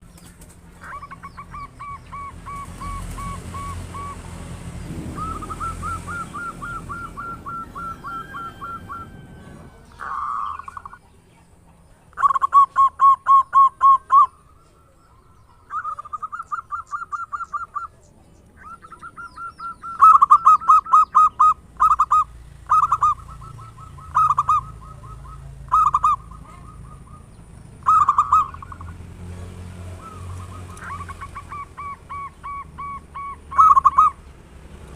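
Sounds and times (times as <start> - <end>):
dove cooing in pulsed bouts: 0.8 - 11.0, 12.1 - 18.0, 18.6 - 29.0, 29.8 - 34.2.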